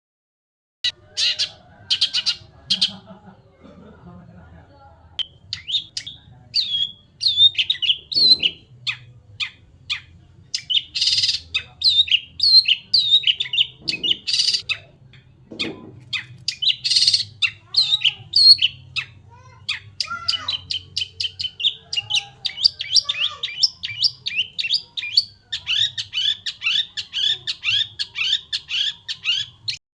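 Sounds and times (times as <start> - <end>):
bird singing whistles and chirps: 5.2 - 8.6.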